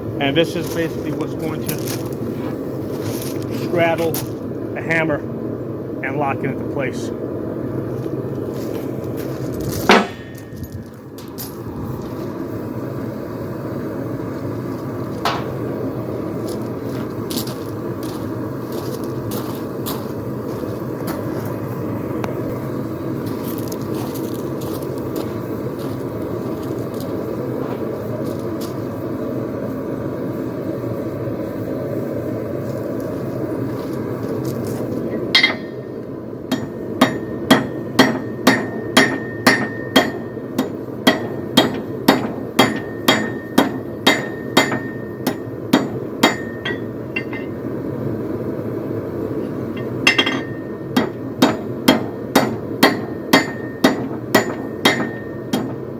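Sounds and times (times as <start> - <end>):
metal clank: 9.8 - 11.6, 15.2 - 15.6, 35.3 - 47.6, 49.4 - 55.9
hammer striking steel on anvil: 9.9 - 10.6, 15.2 - 15.6, 35.3 - 35.9, 36.5 - 47.6, 49.7 - 55.9.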